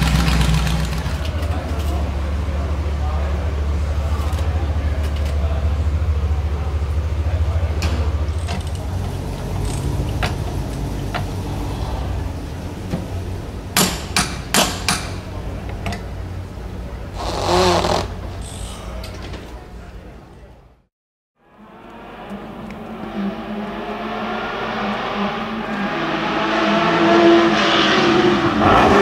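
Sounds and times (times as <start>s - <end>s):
car engine idling: 0.0s - 20.8s.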